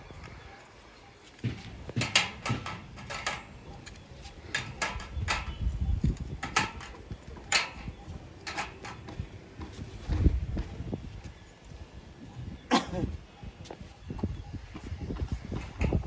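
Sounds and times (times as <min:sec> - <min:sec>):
parts and tools clattering: 0:01.4 - 0:09.2
sharp knocks and clicks: 0:01.4 - 0:09.2.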